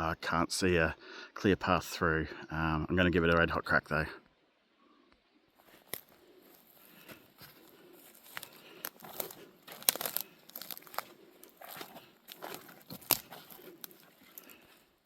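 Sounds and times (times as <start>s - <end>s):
twigs snapping underfoot: 5.6s - 15.0s
undergrowth rustling: 5.6s - 15.0s.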